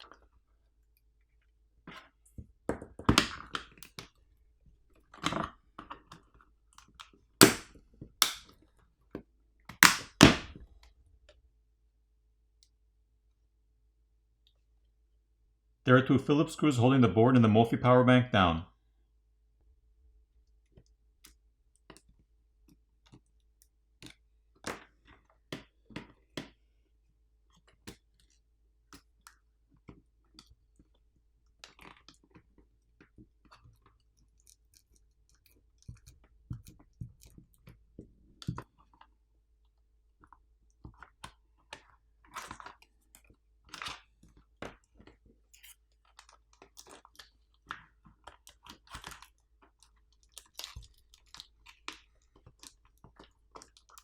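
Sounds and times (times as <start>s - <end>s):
tools clicking and tapping on plastic: 6.8s - 10.6s, 34.4s - 39.0s.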